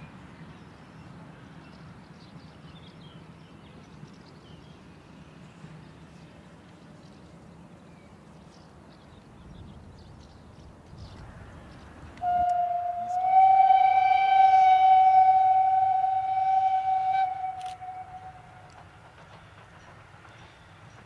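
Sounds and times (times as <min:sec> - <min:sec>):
open-air background: 0:00.0 - 0:21.0
locomotive whistle blowing: 0:12.2 - 0:18.8.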